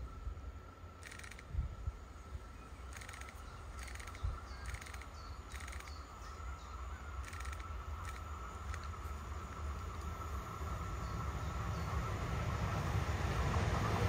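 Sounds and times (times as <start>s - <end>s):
faint small-bird chirps: 2.5s - 8.9s.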